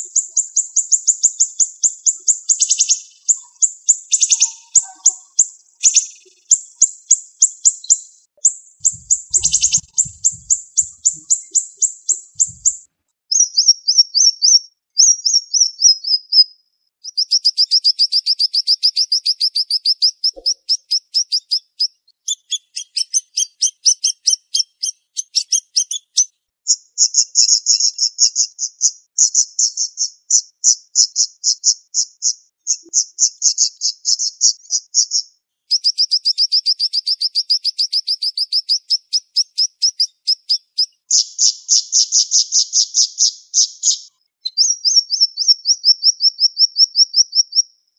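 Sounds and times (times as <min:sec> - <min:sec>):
songbird singing rapid notes: 0:00.0 - 0:14.5.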